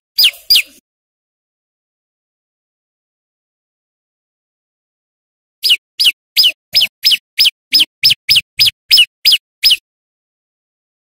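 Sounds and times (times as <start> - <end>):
songbird sharp calls: 5.6 - 9.8.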